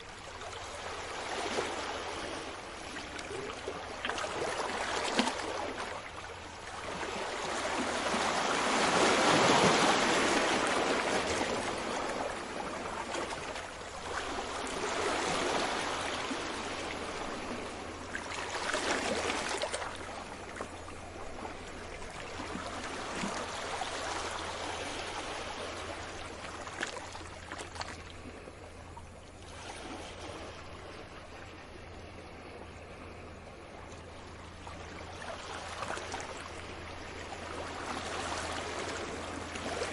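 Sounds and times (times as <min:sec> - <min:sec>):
sea waves washing ashore: 0:00.0 - 0:39.9.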